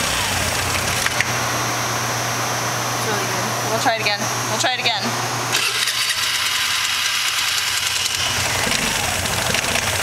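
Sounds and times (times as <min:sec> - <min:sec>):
scooter engine running: 0:05.6 - 0:10.0.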